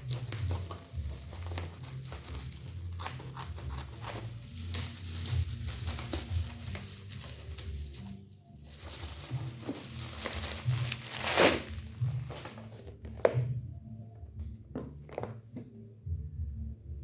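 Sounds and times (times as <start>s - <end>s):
plastic packaging crinkling and tearing: 0.0s - 13.2s.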